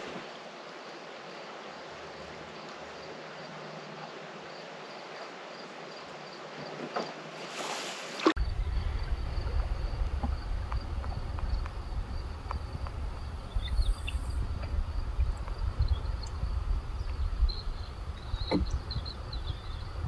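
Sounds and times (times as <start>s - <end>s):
paddle swishing through water: 6.6s - 20.0s
insects chirring: 8.4s - 20.0s
water drips: 8.4s - 20.0s
wind rumbling on microphone: 8.4s - 20.0s.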